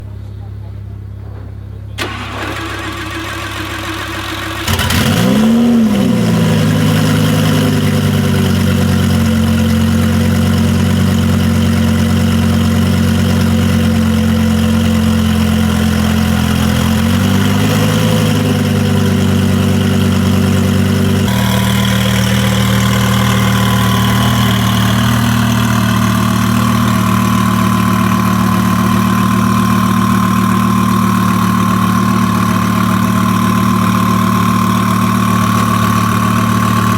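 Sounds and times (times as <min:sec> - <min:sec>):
car engine idling: 0:02.0 - 0:36.9
engine throttle blip: 0:15.8 - 0:36.9
steady higher whine: 0:21.0 - 0:36.9.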